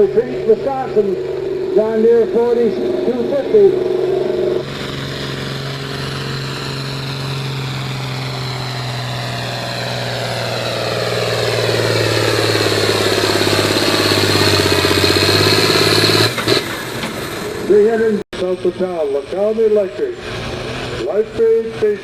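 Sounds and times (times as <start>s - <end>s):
tractor engine straining under load: 20.1s - 22.0s.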